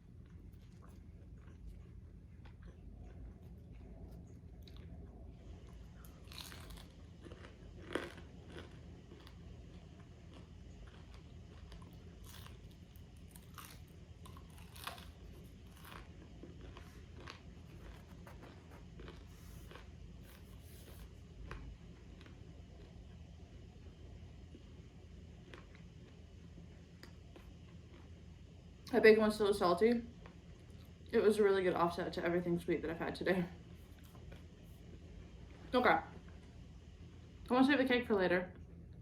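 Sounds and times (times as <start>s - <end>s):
person chewing crispy bacon: 0.0s - 23.1s.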